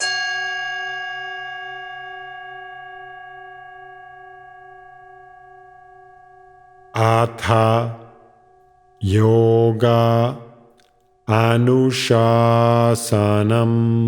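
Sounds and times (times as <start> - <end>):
singing bowl ringing: 0.0 - 7.2, 8.1 - 9.0.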